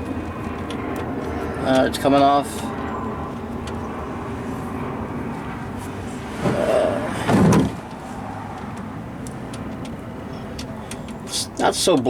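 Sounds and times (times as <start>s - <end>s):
clunk: 7.2s - 8.0s.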